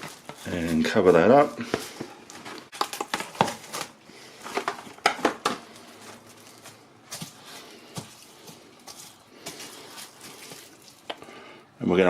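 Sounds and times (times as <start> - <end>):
cling film crinkling: 0.0 - 11.5.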